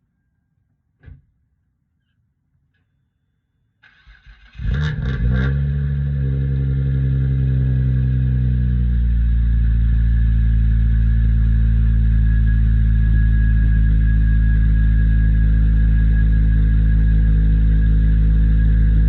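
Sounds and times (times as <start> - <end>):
car engine idling: 5.9 - 19.0.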